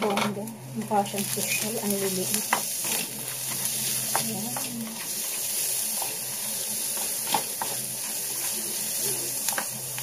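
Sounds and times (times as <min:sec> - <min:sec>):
onion and garlic sizzling in oil: 0:00.0 - 0:10.0
spatula scraping and tapping pan: 0:02.3 - 0:10.0.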